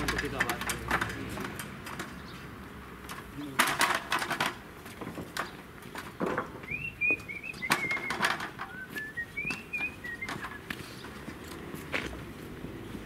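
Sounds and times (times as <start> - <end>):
aluminium stepladder clattering: 0.0 - 2.4, 3.0 - 11.8
bird chirping: 2.1 - 2.5, 5.4 - 11.3
wooden beams knocking: 3.5 - 8.7.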